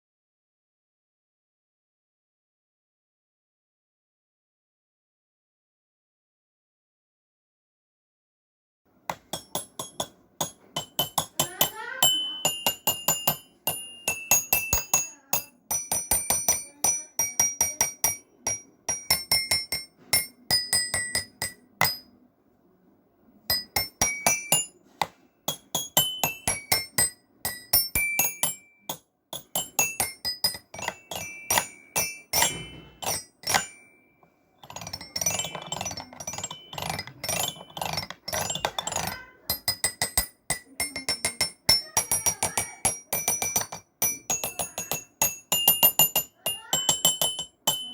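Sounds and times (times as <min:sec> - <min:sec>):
bell-like mallet melody: 0:09.4 - 0:22.1, 0:25.5 - 0:47.9.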